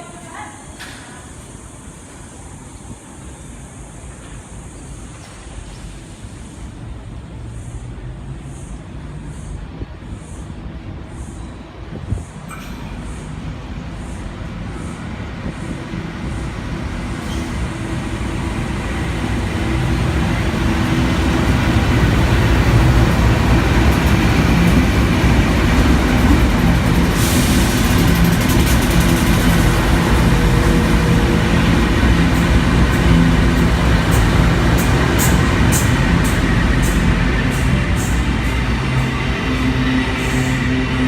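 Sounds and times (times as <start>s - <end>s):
train rumbling past: 0.0s - 41.0s.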